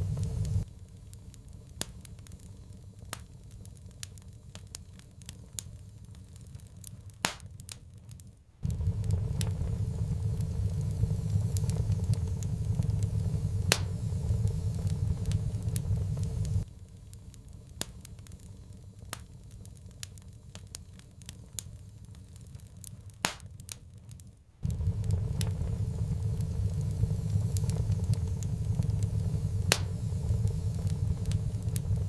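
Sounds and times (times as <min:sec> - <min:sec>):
low rumble: 0:00.0 - 0:00.7, 0:08.6 - 0:16.7, 0:24.6 - 0:32.0
wood fire crackling: 0:00.0 - 0:32.0.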